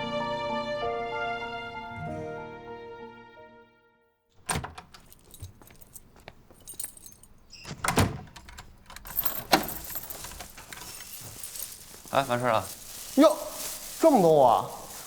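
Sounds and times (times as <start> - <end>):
keys jangling: 4.5 - 7.5, 8.4 - 14.0.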